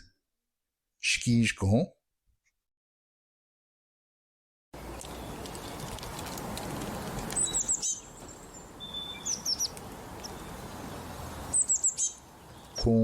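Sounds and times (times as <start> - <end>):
bird chirps: 4.8 - 6.1, 6.8 - 13.0
outdoor hiss: 4.8 - 13.0
bird whistle: 7.4 - 8.1, 8.8 - 10.5, 11.5 - 12.2.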